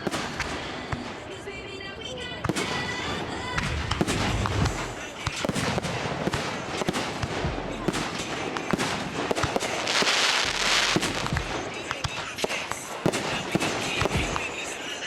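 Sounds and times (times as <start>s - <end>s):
fireworks bangs and pops: 0.0s - 1.8s, 2.4s - 15.0s
fireworks crackling hiss: 2.5s - 15.0s.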